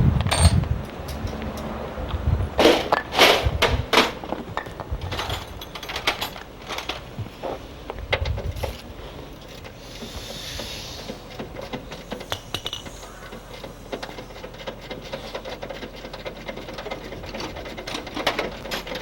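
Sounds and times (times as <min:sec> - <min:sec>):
metal knocks and clicks: 0:02.6 - 0:07.1, 0:11.0 - 0:19.0
tools scraping metal: 0:08.4 - 0:19.0.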